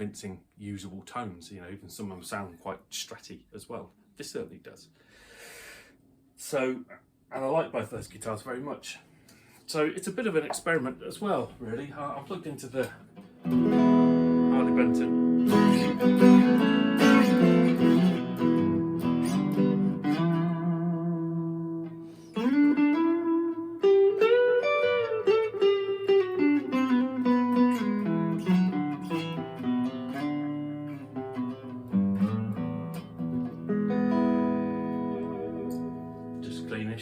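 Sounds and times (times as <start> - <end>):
electric guitar playing: 13.0 - 37.0.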